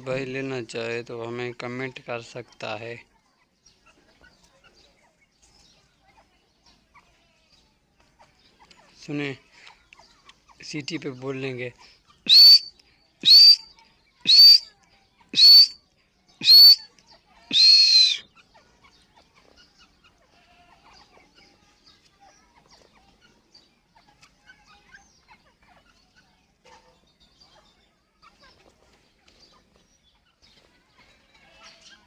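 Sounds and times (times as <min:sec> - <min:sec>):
francolin shrill calls: 0:12.3 - 0:13.7, 0:14.3 - 0:14.7, 0:15.3 - 0:15.8, 0:16.4 - 0:16.9, 0:17.5 - 0:18.2.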